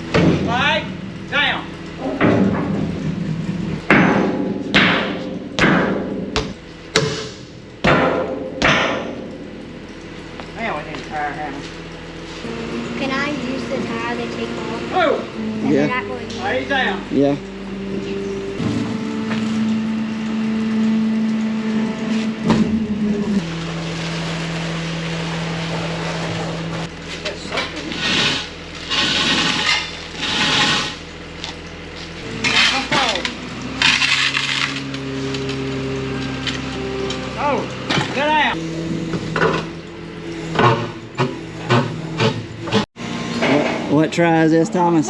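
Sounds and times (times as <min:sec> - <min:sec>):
engine running: 0:00.0 - 0:45.0
steady low hum: 0:00.0 - 0:45.0.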